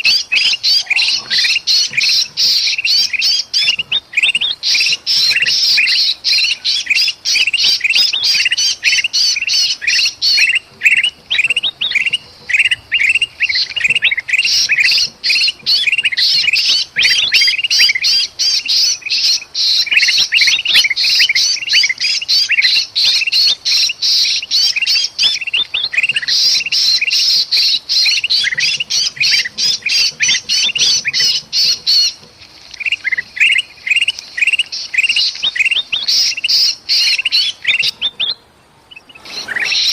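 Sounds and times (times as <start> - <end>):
bird squawking distress calls: 0.0 - 32.2, 32.8 - 39.9
birds chattering chorus: 0.0 - 39.9.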